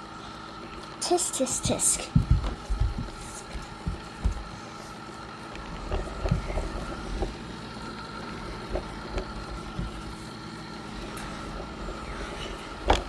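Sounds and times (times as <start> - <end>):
thin steady whine: 0.0 - 13.0
robot vacuum running: 0.8 - 13.0
short knocks: 1.6 - 4.5.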